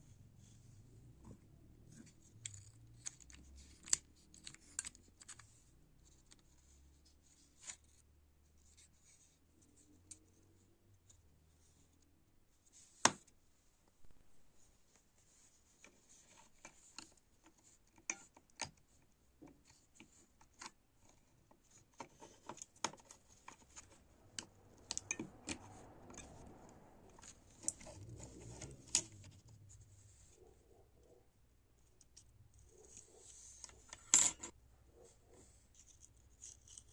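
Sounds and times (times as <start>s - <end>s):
light rubbing or scraping: 21.7s - 31.2s, 32.2s - 36.9s.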